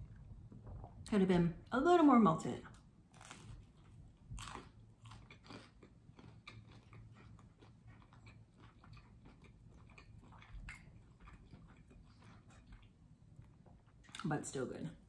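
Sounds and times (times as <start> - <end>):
crunchy bread chewing: 3.1 - 14.3.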